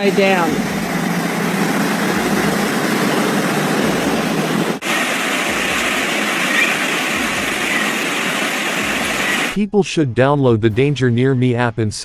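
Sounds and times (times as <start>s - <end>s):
heavy rain and rushing water: 0.0s - 9.6s.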